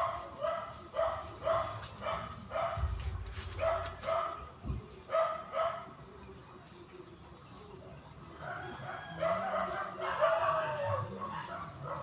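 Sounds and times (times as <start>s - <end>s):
dog barking: 0.0s - 3.0s, 3.6s - 4.5s, 5.1s - 5.9s, 8.5s - 12.0s.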